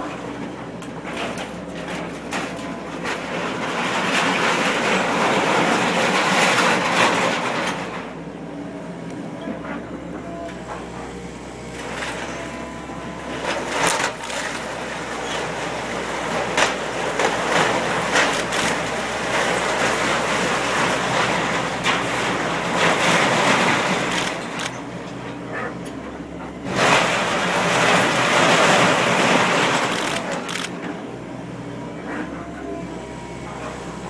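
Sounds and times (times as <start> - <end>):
machine engine running: 10.5 - 30.9
debris crashing down: 26.7 - 30.5.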